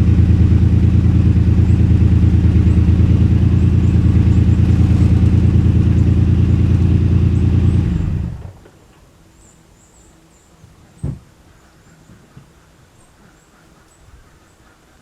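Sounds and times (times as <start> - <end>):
car engine running: 0.0 - 8.6
thump: 11.0 - 11.2.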